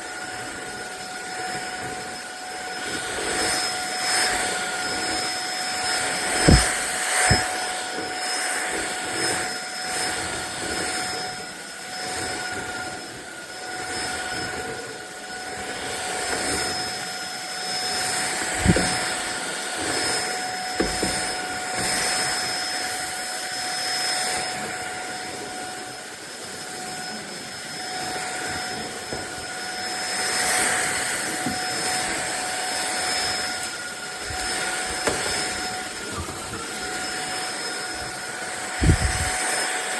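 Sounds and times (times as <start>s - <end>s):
stick vacuum cleaner running: 0.0s - 39.9s
short knocks: 6.4s - 7.5s.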